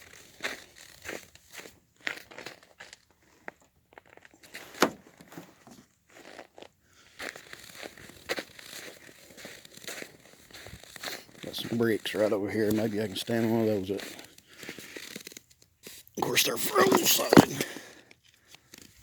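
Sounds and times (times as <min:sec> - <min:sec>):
phone handling rustling: 0:16.2 - 0:17.8.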